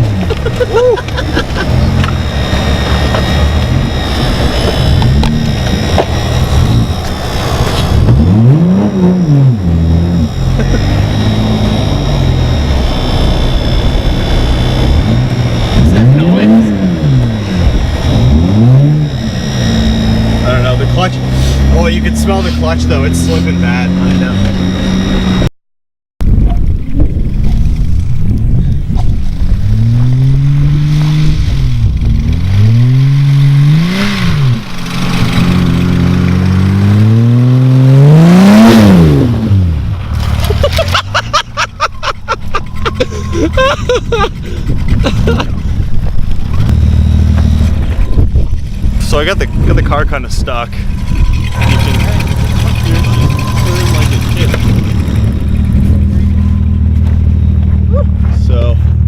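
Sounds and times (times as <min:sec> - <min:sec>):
car engine revving: 0:00.0 - 0:25.5, 0:26.6 - 0:59.0.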